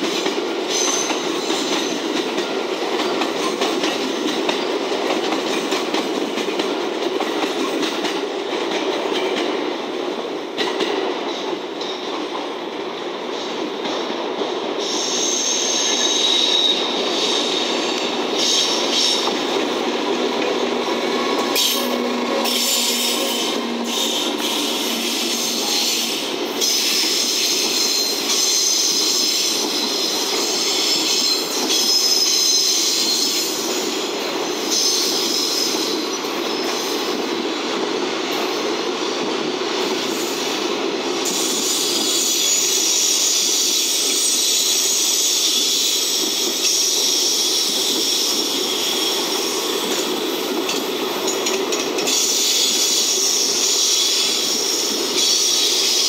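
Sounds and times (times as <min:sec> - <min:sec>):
freight train wheels rumbling: 0:00.0 - 0:56.0
high wheel squeal: 0:14.8 - 0:35.9, 0:41.3 - 0:50.4, 0:52.1 - 0:56.0.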